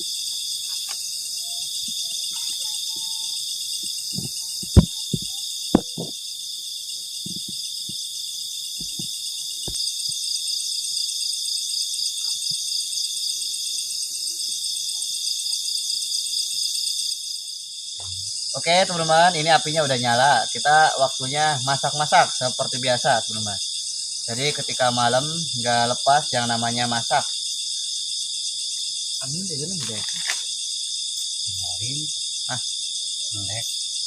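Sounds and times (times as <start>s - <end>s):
crickets trilling: 0.0s - 34.0s
sharp knocks: 4.2s - 6.2s.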